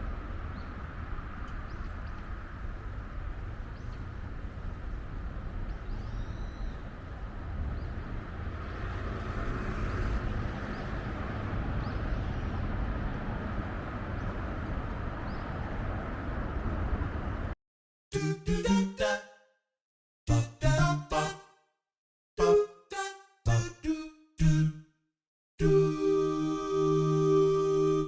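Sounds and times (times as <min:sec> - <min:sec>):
outdoor rumble and hiss: 0:00.0 - 0:17.6
faint bird chirps: 0:05.7 - 0:07.0.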